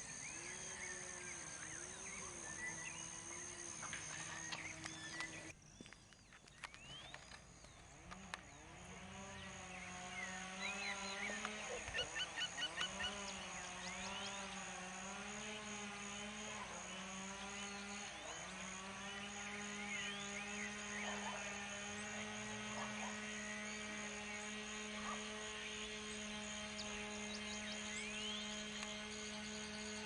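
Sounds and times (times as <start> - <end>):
birds chirping and whistling: 0.0 - 30.0.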